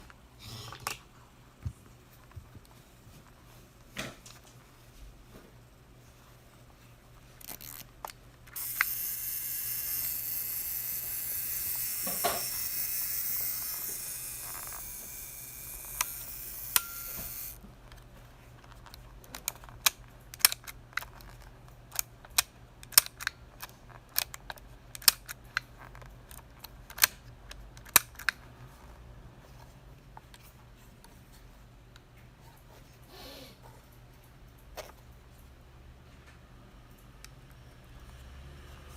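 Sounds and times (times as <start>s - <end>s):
camera mechanism clicks: 7.4s - 17.6s.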